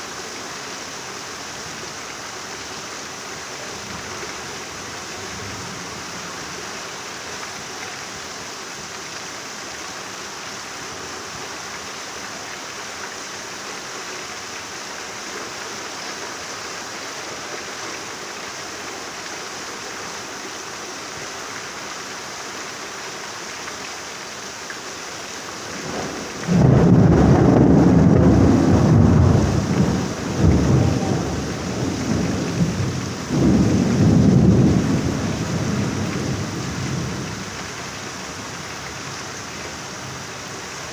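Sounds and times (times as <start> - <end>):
steady rain falling: 0.0 - 40.9
thunder rumbling: 25.6 - 38.6.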